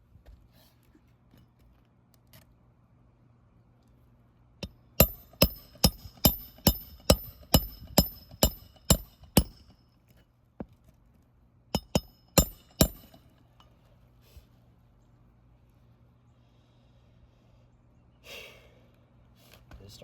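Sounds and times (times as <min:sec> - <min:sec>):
hammer driving nails: 0:05.0 - 0:09.8, 0:11.8 - 0:13.2.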